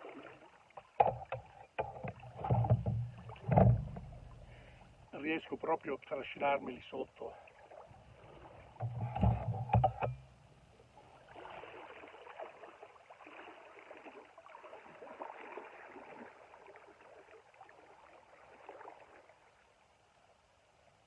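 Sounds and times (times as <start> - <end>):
river water rushing and gurgling: 0.0 - 20.2
sharp knocks: 1.0 - 4.7, 8.8 - 10.2.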